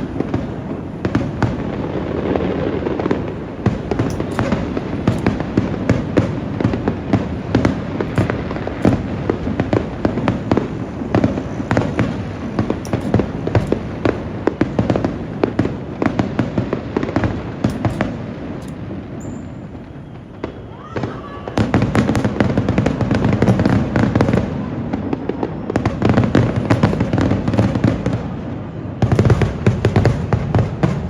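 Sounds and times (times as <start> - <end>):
fireworks bursting: 0.0 - 31.0.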